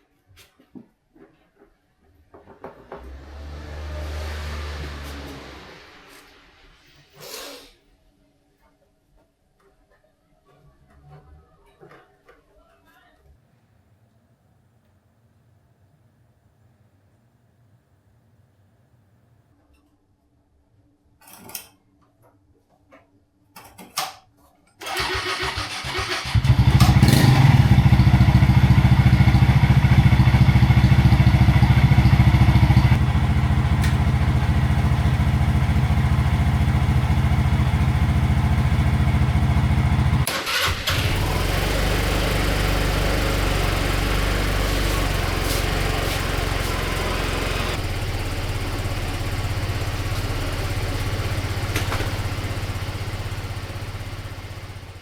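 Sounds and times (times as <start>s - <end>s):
scooter engine starting and running: 24.8s - 55.0s.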